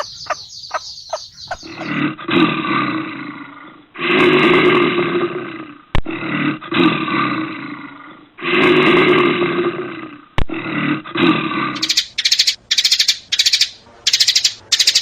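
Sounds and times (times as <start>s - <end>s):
large animal calling: 0.0s - 2.1s.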